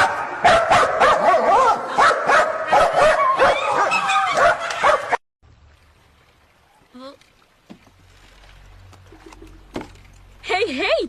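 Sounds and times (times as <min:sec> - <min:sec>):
dog barking and yipping: 0:00.0 - 0:05.2.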